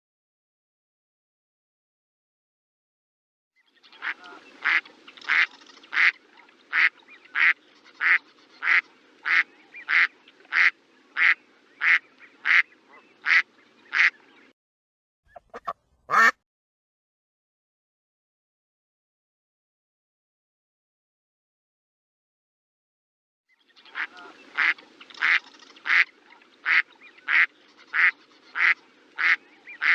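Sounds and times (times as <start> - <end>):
duck quacking: 4.0 - 14.2, 15.3 - 16.4, 24.0 - 29.9.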